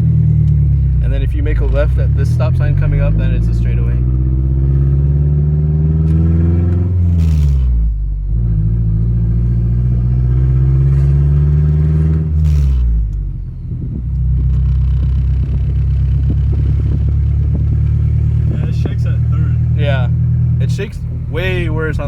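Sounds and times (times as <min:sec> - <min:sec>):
car engine accelerating: 0:00.0 - 0:22.0
gear shift noise burst: 0:06.9 - 0:07.9, 0:11.7 - 0:22.0.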